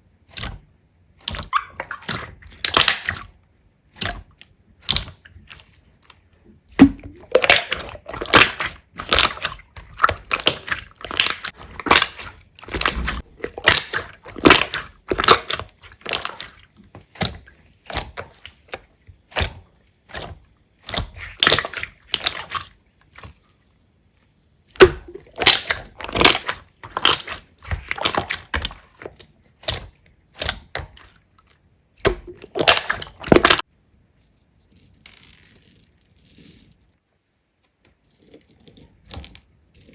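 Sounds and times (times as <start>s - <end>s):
slime squishing and popping: 0.3s - 5.6s, 6.7s - 22.7s, 24.8s - 31.2s, 32.0s - 33.6s.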